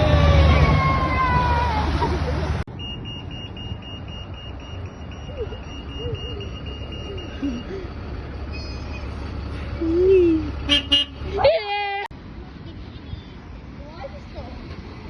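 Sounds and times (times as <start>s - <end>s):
passing traffic rumble: 0.0s - 15.0s
reversing alarm beeps: 2.7s - 7.9s.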